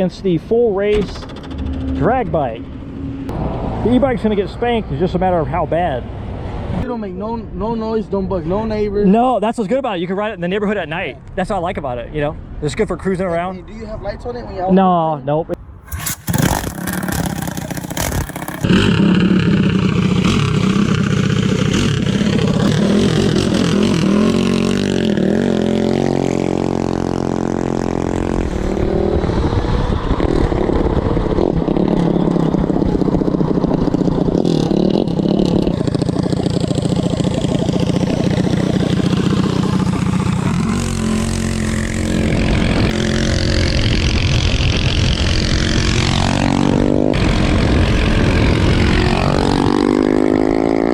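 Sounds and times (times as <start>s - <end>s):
minibike engine revving: 15.8s - 50.9s.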